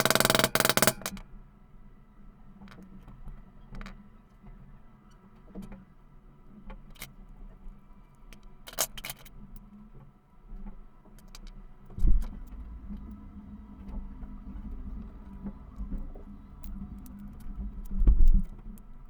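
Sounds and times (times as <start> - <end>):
sharp clatter: 0.0 - 1.2
small metal parts clicking: 0.0 - 1.2, 8.7 - 9.3
heavy thump: 12.0 - 18.4.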